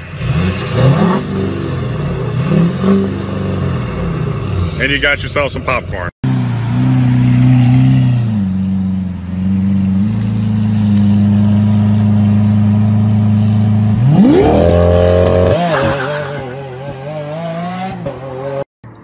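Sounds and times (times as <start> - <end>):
sports car engine revving: 6.2 - 18.6.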